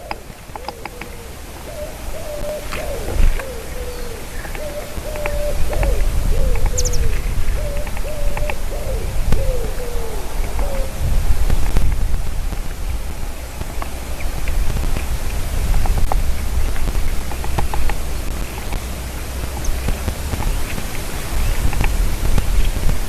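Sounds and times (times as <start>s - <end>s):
bird hooting: 0.0s - 11.0s
steady low rumble: 0.0s - 23.0s.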